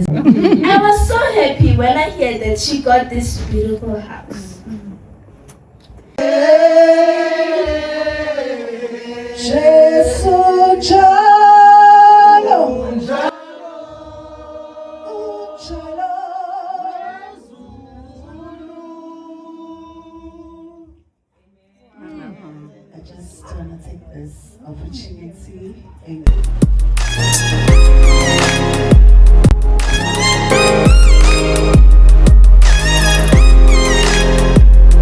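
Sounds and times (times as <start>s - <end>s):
group singing in harmony: 6.2s - 20.9s.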